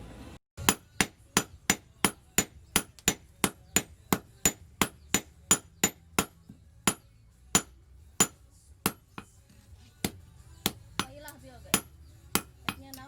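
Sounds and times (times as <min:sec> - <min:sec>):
hammer blows on steel anvil: 0:00.6 - 0:09.4.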